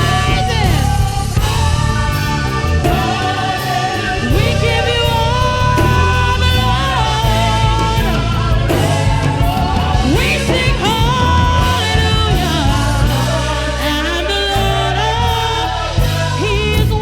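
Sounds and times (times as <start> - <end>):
band playing with vocals: 0.0 - 17.0.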